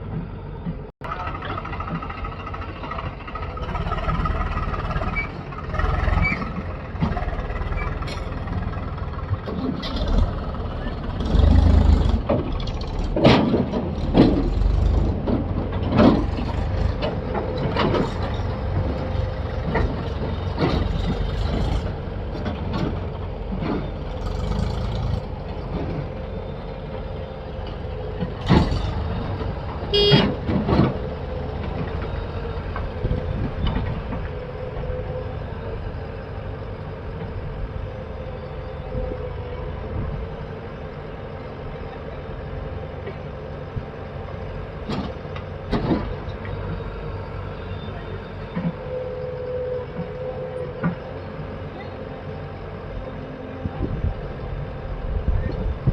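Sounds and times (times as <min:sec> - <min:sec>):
diesel machinery running: 0:00.0 - 0:55.9
sharp knocks and clatter: 0:11.2 - 0:25.1.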